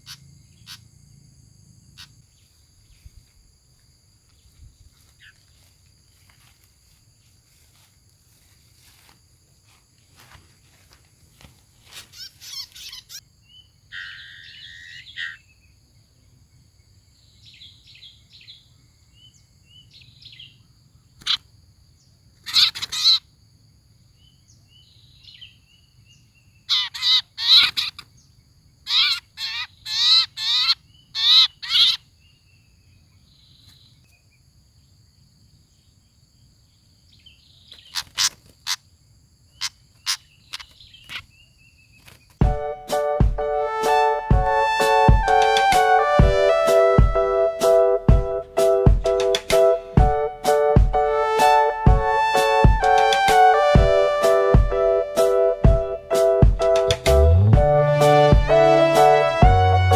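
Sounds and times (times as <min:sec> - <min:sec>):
harsh bird calls: 0:00.0 - 0:00.9, 0:11.9 - 0:15.6, 0:22.4 - 0:23.3, 0:26.6 - 0:32.1, 0:37.6 - 0:38.8, 0:39.5 - 0:42.2.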